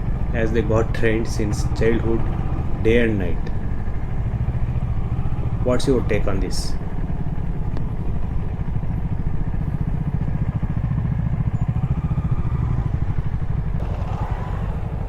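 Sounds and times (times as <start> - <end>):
motorcycle engine running: 0.0 - 15.0
clatter over dirt track: 13.7 - 15.0.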